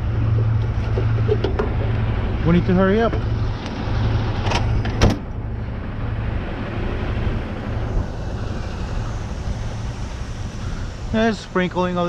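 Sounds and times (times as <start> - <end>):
noisy hiss: 7.3 - 12.0.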